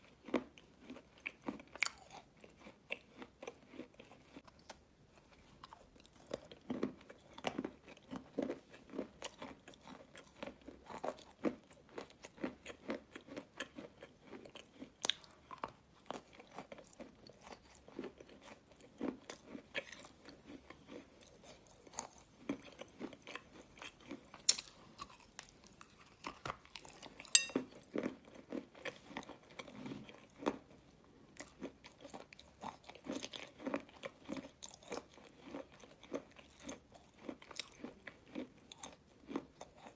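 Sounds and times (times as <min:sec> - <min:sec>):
food crunching bites: 0:00.2 - 0:04.8, 0:05.6 - 0:30.6
wet chewing and lip smacks: 0:00.8 - 0:30.6.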